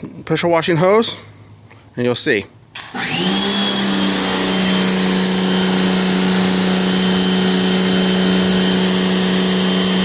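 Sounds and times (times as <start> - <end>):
pressure washer pump humming: 2.7 - 10.0.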